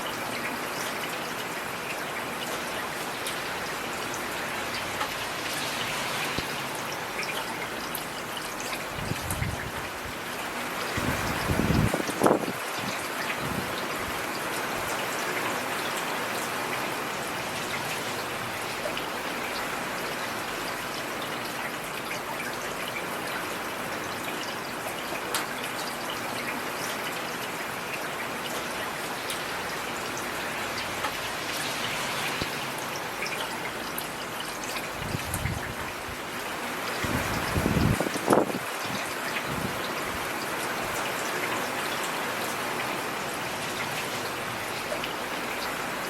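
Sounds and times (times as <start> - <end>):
heavy rain: 0.0 - 46.0.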